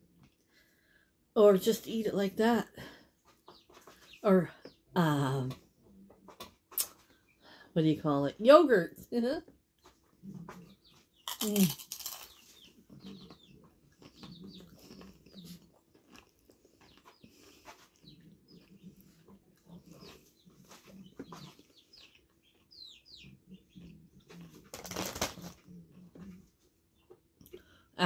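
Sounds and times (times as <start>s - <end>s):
crunching tortilla chips: 11.2s - 12.6s, 13.9s - 16.8s, 24.7s - 25.6s
chip bag rustling: 11.3s - 12.4s, 24.7s - 25.6s.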